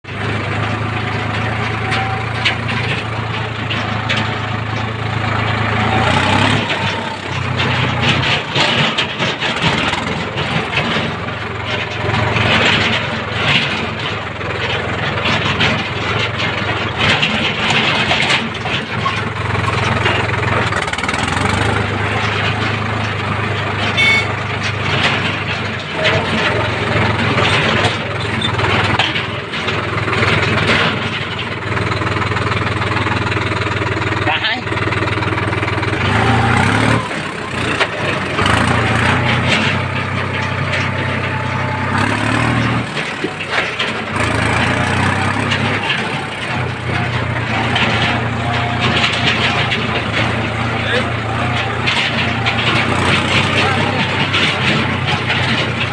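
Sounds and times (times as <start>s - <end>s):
heavy machinery diesel engine: 0.0s - 55.9s
machinery clattering: 0.0s - 55.9s.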